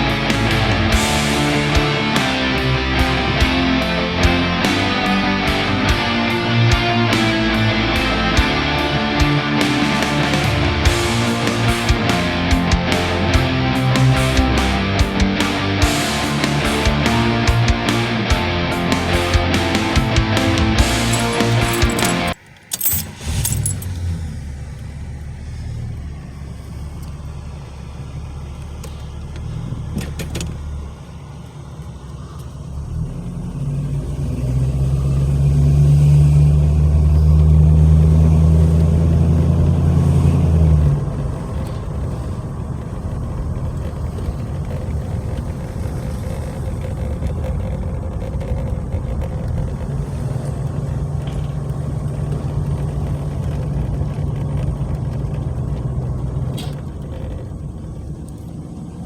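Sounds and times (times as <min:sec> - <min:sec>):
car engine running: 0:00.0 - 0:59.0.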